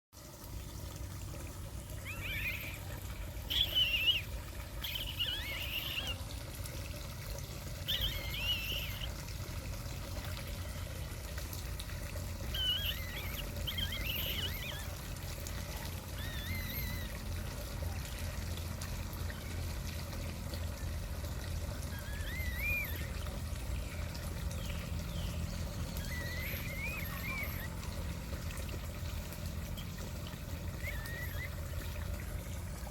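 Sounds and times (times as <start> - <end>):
water rushing: 0.2 - 32.9
birds whistled calls: 1.9 - 6.3, 7.7 - 9.2, 12.4 - 17.4, 21.7 - 28.4, 29.2 - 32.6.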